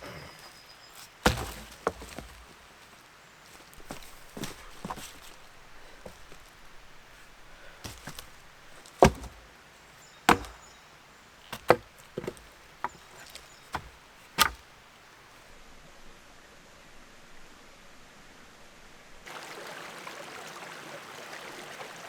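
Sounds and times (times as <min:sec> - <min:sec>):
tool striking wood: 0:01.2 - 0:02.4, 0:07.9 - 0:08.2, 0:09.0 - 0:09.4, 0:10.3 - 0:10.7, 0:11.5 - 0:14.6.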